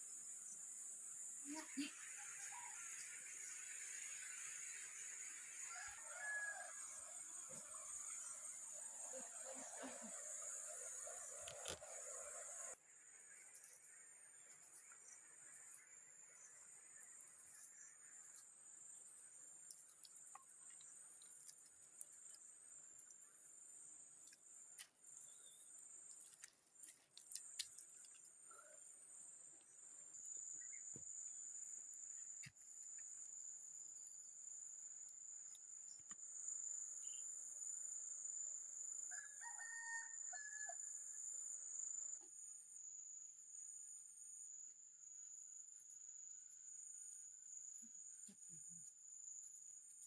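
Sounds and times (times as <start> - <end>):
insects droning: 0.0 - 50.0
faint rooster crowing: 5.6 - 7.6, 39.1 - 41.1.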